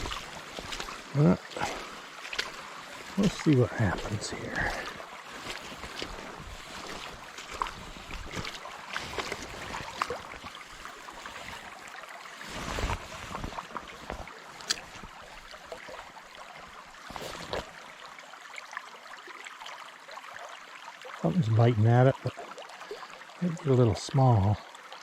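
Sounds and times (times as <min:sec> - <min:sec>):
splashes from wading: 0:00.0 - 0:18.0
brook running: 0:00.0 - 0:25.0.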